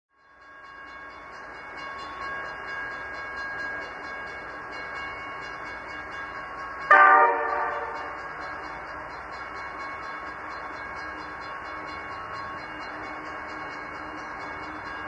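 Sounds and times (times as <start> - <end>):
diesel locomotive engine running: 3.0 - 15.0
train chime horn blast: 6.8 - 8.8.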